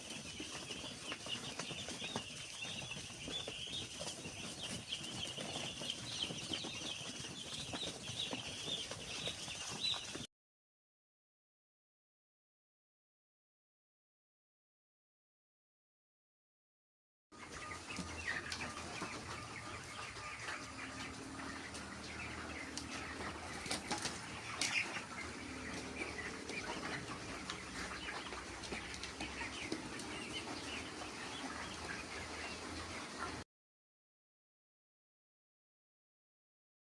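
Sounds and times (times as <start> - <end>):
chickens peeping and clucking: 0.0 - 10.3, 17.4 - 33.4.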